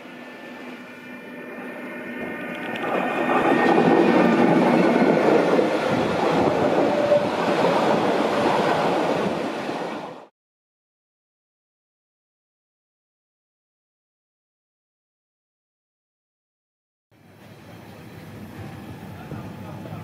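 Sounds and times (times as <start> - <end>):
train wheels rumbling on rails: 0.2 - 10.3, 17.4 - 20.0.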